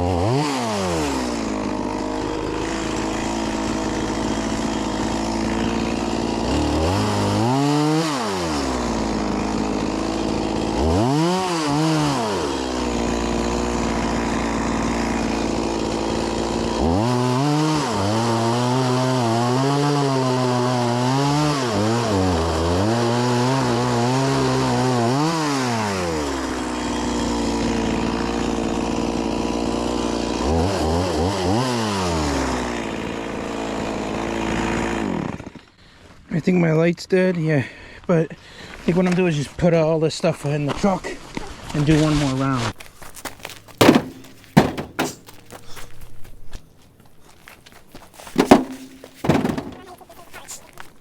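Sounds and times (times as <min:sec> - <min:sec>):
chainsaw idling and revving: 0:00.0 - 0:35.8, 0:43.7 - 0:45.8.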